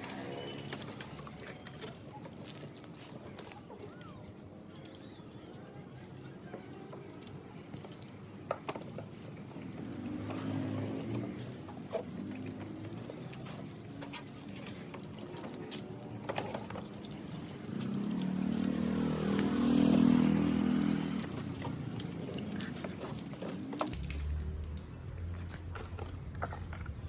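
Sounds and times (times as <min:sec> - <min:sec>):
water pouring and dripping: 0:00.0 - 0:27.0.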